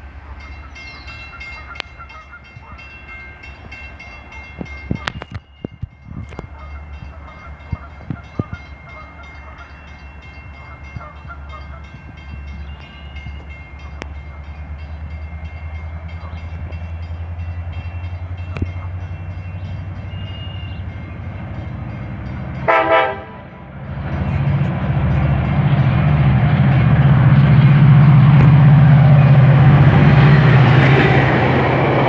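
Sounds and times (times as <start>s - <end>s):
diesel locomotive engine rumble: 0.0s - 32.0s
train air horn blast: 22.6s - 23.7s.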